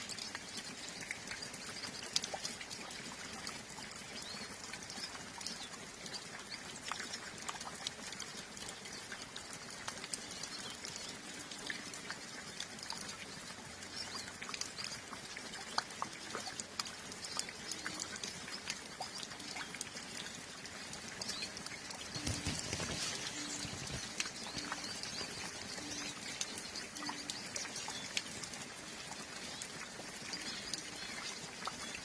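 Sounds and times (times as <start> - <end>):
calm rain: 0.0 - 32.0
water dripping: 0.0 - 32.0
flock of birds chirping: 8.6 - 32.0.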